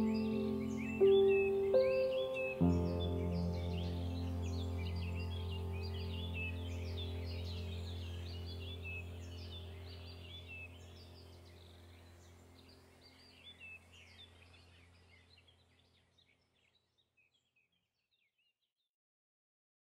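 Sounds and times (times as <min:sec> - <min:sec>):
low hum: 0:00.0 - 0:15.0
birds chirping: 0:00.0 - 0:17.8.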